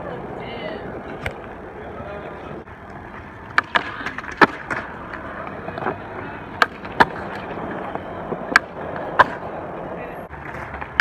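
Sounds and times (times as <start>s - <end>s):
skateboard wheels rolling: 0.0s - 11.0s
skateboard clacking on ground: 2.3s - 11.0s.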